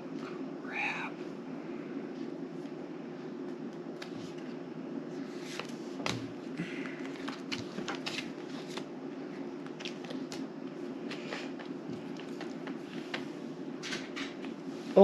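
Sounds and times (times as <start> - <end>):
steady low hum: 0.0 - 15.0
playing cards shuffling: 5.2 - 8.9, 9.6 - 13.3.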